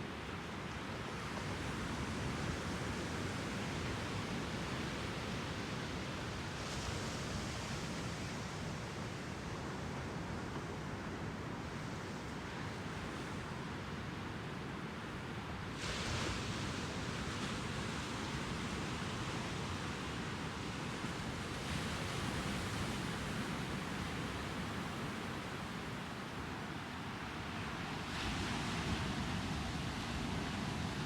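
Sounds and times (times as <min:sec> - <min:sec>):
ocean surf washing onto beach: 0:13.4 - 0:31.0.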